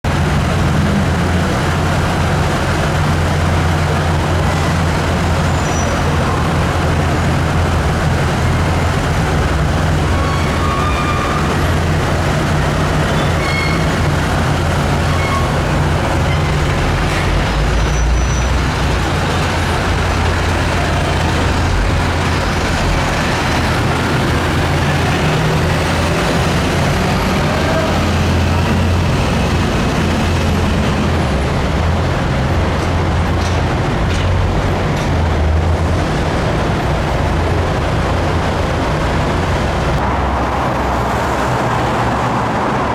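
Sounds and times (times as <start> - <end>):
heavy diesel engine running: 0.0 - 42.9
road and traffic noise: 0.0 - 42.9.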